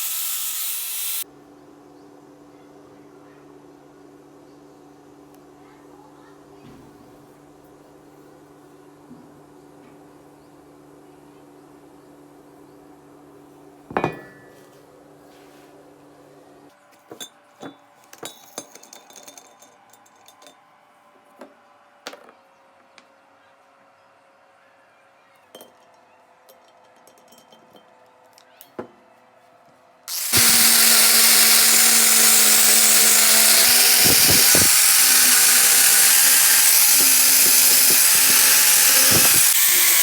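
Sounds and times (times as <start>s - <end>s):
metal tools clinking on pipe: 25.6s - 27.9s.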